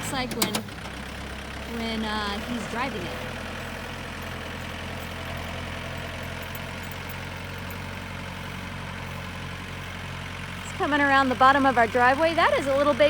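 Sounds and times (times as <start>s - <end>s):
tractor engine running steadily: 0.0s - 13.0s.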